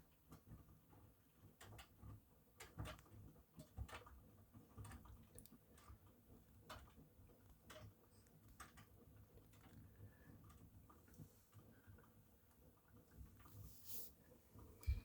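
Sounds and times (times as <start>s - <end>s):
washing machine clicks and knocks: 0.3s - 8.0s.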